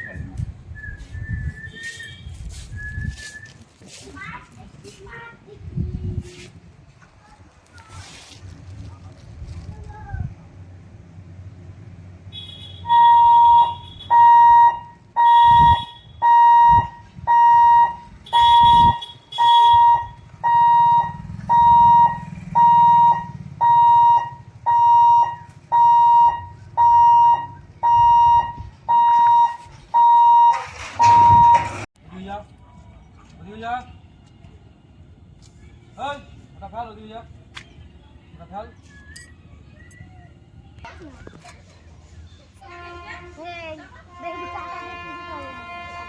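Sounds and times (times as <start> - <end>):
level crossing warning beeps: 13.0 - 19.0, 19.7 - 31.8.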